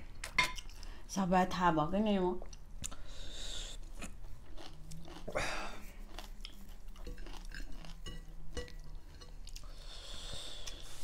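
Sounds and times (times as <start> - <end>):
chewing and crunching food: 2.3 - 11.0.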